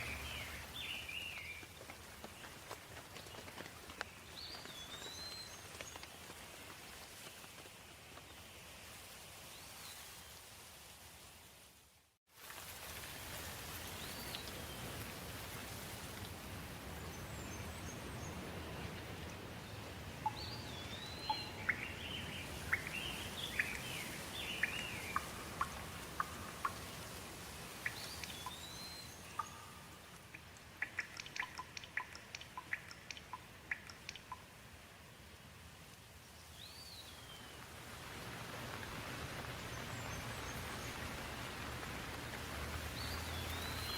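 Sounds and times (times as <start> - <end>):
birds calling: 0.0 - 1.7, 17.4 - 27.2, 27.8 - 34.4
steady rain falling: 0.0 - 43.9
sharp ticks: 29.4 - 34.5.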